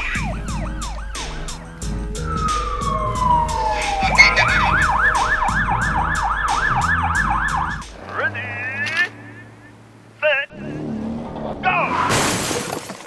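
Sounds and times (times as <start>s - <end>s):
cartoon siren wailing: 0.2s - 7.7s
falling whistle-like glide: 2.4s - 6.6s.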